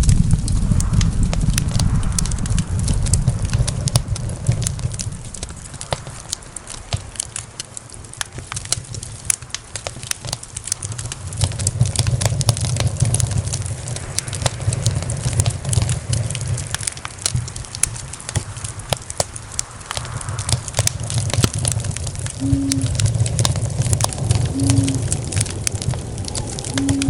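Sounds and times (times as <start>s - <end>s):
low rumble: 0.0s - 7.9s, 19.6s - 27.0s
wood fire crackling and popping: 0.0s - 27.0s.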